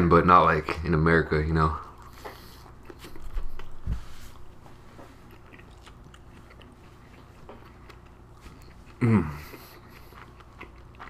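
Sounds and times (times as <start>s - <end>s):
wet mouth clicks chewing: 5.2s - 11.0s.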